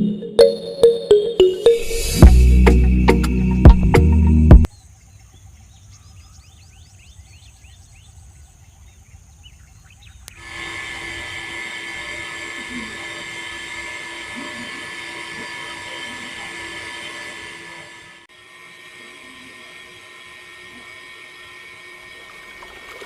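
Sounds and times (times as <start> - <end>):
small machine humming and whining: 10.2 - 23.0.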